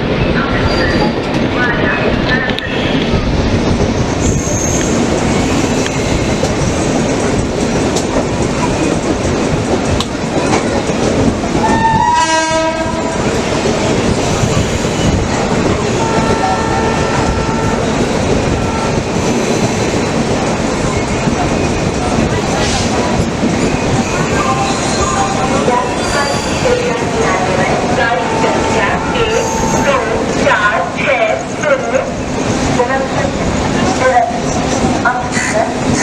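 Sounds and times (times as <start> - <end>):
train wheels rumbling on rails: 0.0 - 36.0
train horn: 11.6 - 13.4, 15.9 - 19.0.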